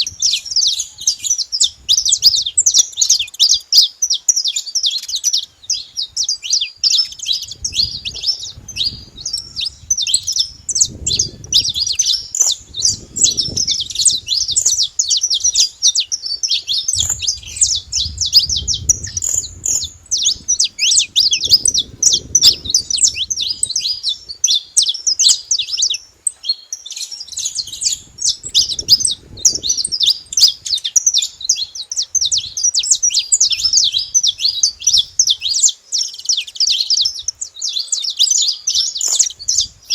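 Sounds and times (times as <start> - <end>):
finches chirping: 0.0 - 39.9
low rumble: 17.0 - 23.9.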